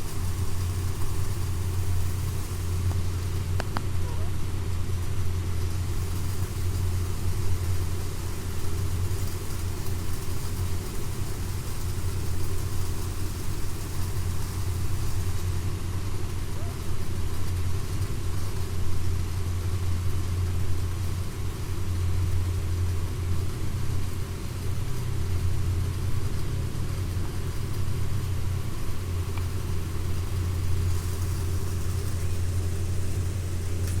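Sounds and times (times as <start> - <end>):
low mechanical hum: 0.0 - 34.0.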